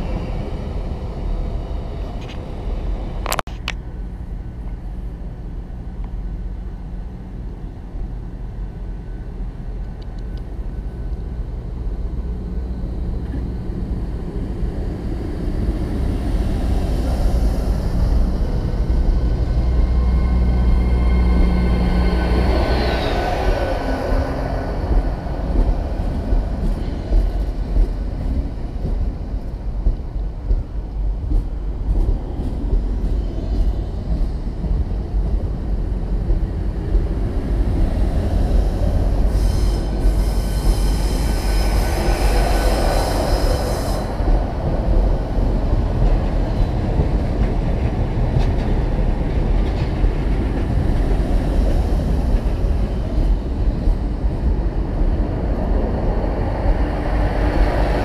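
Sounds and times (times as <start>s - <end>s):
train running hum: 0.0s - 58.0s
train wheels knocking: 23.2s - 54.5s.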